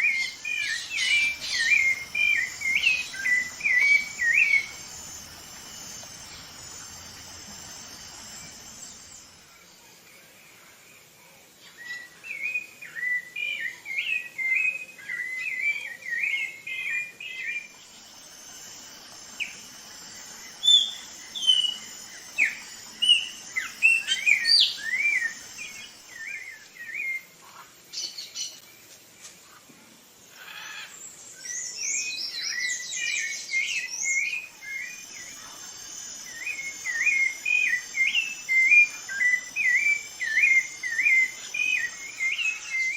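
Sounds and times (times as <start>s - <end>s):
thrush singing fluting phrases: 0.0s - 9.5s, 14.2s - 27.3s, 33.6s - 42.9s
insects buzzing: 0.0s - 42.9s.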